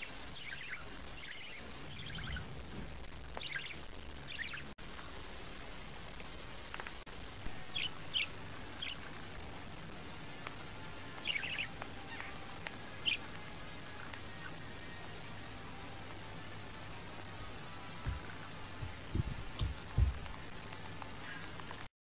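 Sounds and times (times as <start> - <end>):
high bird chirps: 0.0 - 2.6, 3.4 - 4.7, 7.6 - 9.1, 11.1 - 14.6
steady background hiss: 0.0 - 21.9.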